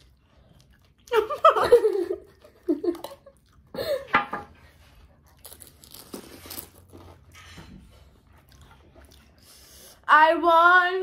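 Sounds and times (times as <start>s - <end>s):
crisp shell crunching and chewing: 4.9s - 7.4s.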